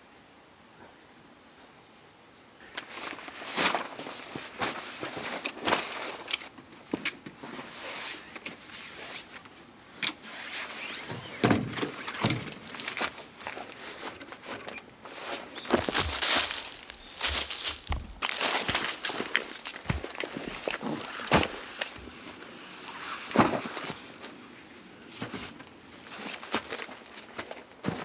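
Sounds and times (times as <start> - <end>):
gear rustling and clinking: 15.6 - 22.0.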